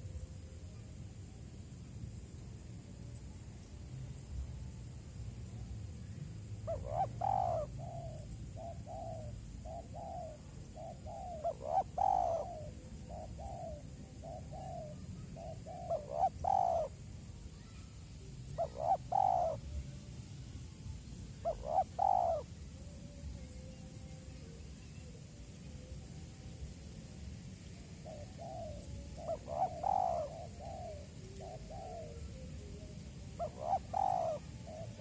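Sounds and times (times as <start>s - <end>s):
dove cooing: 6.4s - 17.8s, 18.4s - 19.9s, 21.2s - 26.6s, 27.7s - 35.0s.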